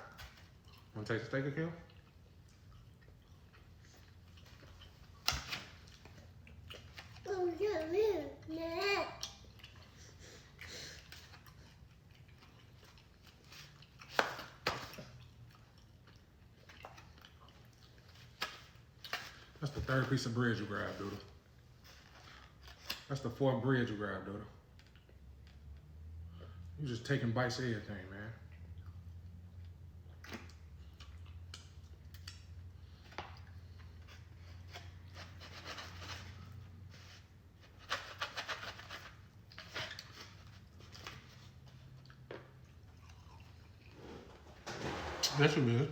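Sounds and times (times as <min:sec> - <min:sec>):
chewing food: 0:00.0 - 0:01.0, 0:01.8 - 0:07.3, 0:09.2 - 0:19.5, 0:24.6 - 0:26.5, 0:28.4 - 0:35.2, 0:39.3 - 0:44.5.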